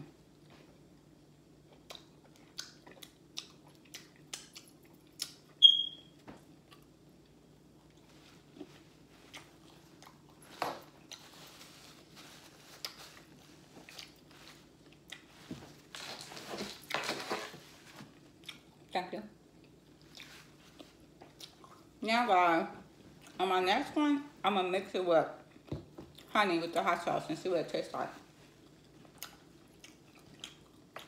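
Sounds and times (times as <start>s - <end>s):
chewing crunchy chicken: 1.6s - 5.6s, 6.6s - 11.3s, 28.5s - 31.0s
brief high squeak: 5.6s - 6.1s
paper napkin rustling: 11.2s - 18.1s.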